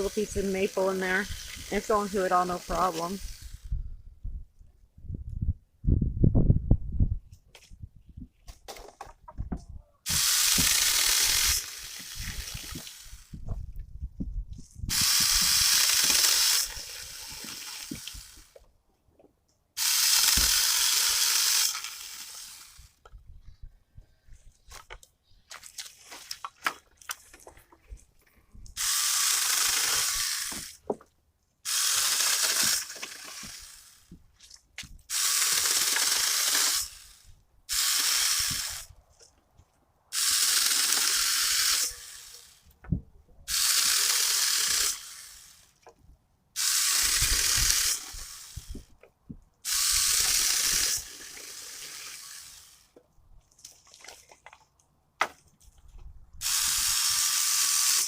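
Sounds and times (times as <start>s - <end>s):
cordless chainsaw cutting wood: 0.0s - 3.6s, 10.1s - 13.4s, 14.9s - 18.6s, 19.8s - 23.0s, 28.8s - 30.9s, 31.6s - 34.2s, 35.1s - 38.9s, 40.1s - 42.7s, 43.5s - 45.8s, 46.6s - 48.9s, 49.6s - 53.0s, 56.4s - 58.0s.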